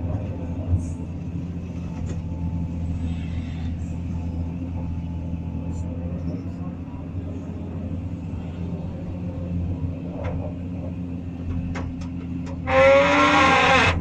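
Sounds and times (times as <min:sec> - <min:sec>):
excavator engine running: 0:00.0 - 0:14.0
wooden handle squealing against metal: 0:12.6 - 0:14.0.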